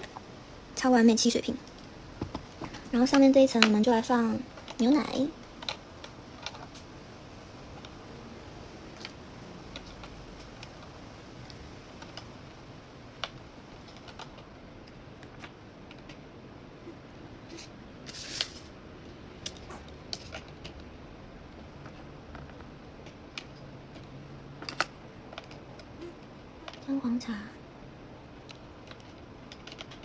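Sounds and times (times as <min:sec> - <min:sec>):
small plastic toys clicking: 0:01.2 - 0:06.9, 0:08.9 - 0:12.4, 0:13.1 - 0:16.2, 0:21.8 - 0:26.9, 0:28.4 - 0:30.0.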